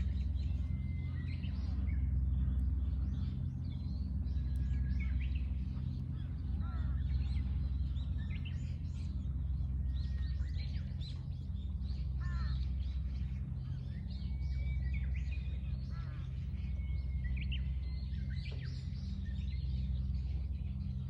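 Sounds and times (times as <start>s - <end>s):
steady low hum: 0.0s - 21.0s
wild birds chirping: 0.0s - 21.0s
harsh cawing calls: 12.2s - 12.6s.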